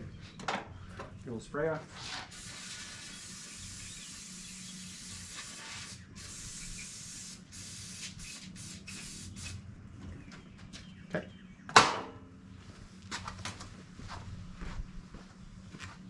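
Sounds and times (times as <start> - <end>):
aerosol spray can hissing: 2.3 - 9.6.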